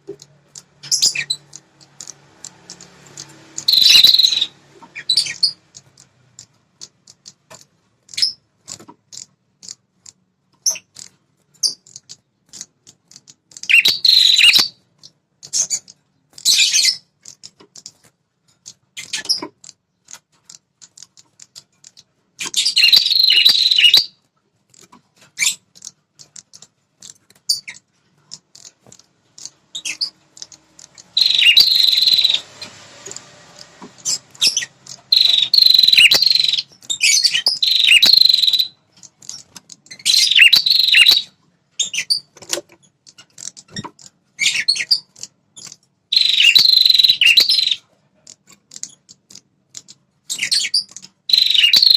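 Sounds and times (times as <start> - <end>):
bird ticking calls: 0.0 - 51.9
bird chattering song bursts: 2.7 - 5.6, 13.6 - 14.8, 22.5 - 24.1, 29.4 - 33.2, 34.0 - 42.3, 44.4 - 47.8, 50.4 - 51.9.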